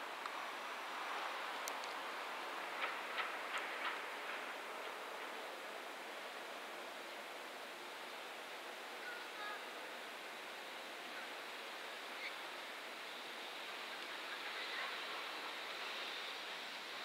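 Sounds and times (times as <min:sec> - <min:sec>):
freight train rolling: 0:02.4 - 0:06.5.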